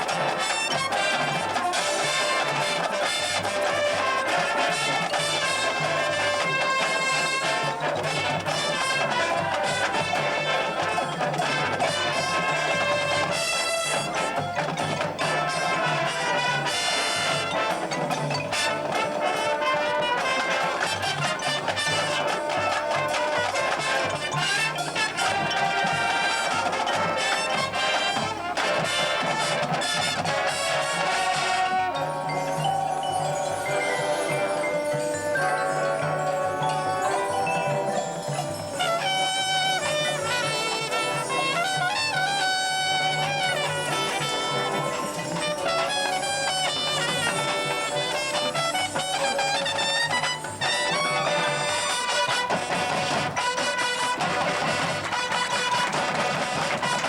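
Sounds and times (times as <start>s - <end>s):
brass ensemble playing: 0.0s - 57.0s.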